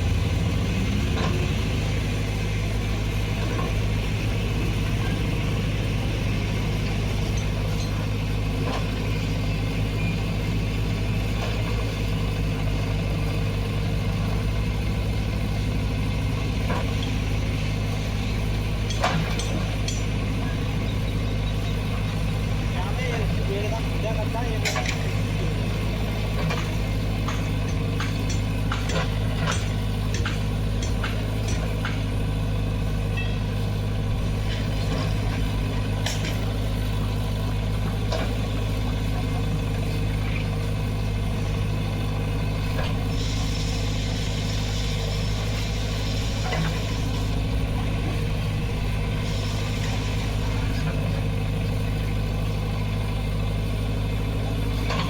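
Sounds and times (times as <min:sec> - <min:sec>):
diesel engine running: 0:00.0 - 0:55.0
sharp ticks and knocks: 0:18.8 - 0:20.2, 0:26.4 - 0:32.2, 0:36.0 - 0:36.5
hiss: 0:43.1 - 0:47.3, 0:49.1 - 0:50.6.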